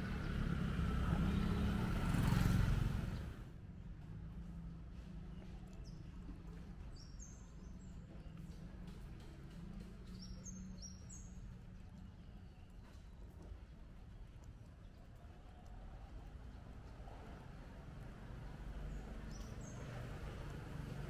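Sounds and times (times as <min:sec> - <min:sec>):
distant traffic hum: 0:00.0 - 0:21.0.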